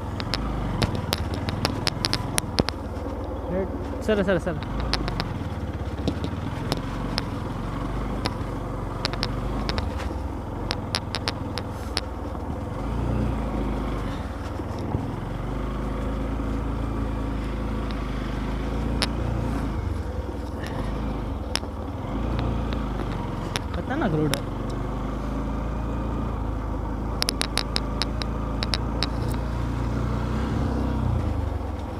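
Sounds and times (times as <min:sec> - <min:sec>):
sharp clicks and knocks: 0:00.0 - 0:12.8, 0:17.7 - 0:24.9, 0:26.1 - 0:30.1
motorcycle engine and road rumble: 0:00.0 - 0:31.9.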